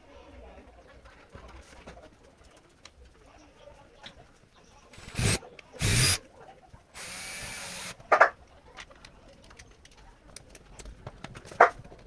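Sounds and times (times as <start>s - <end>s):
power screwdriver running: 5.0s - 6.2s, 7.0s - 8.0s.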